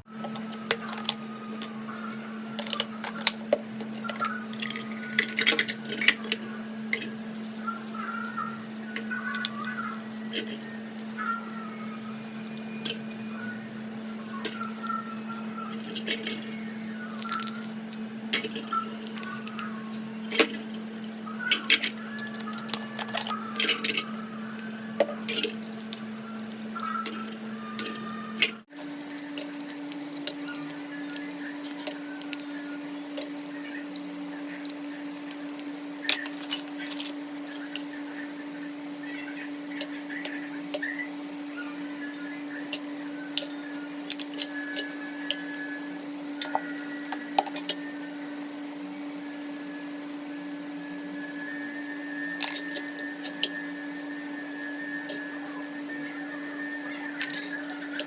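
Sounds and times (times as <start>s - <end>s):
steady hum: 0.0s - 58.0s
small clicks and crackles: 2.5s - 24.1s, 25.2s - 45.8s.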